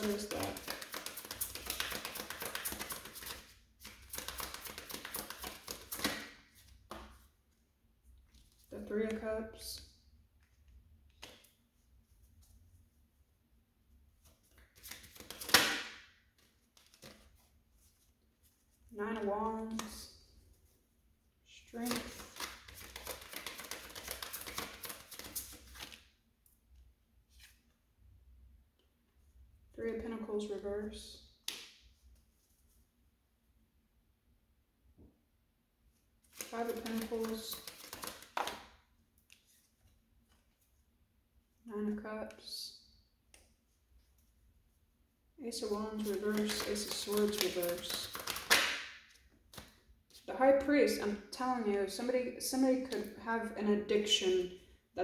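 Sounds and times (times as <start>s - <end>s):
cards being shuffled: 0.0s - 7.2s, 14.3s - 15.8s, 16.4s - 17.5s, 21.8s - 26.0s, 36.2s - 40.6s, 45.9s - 50.2s.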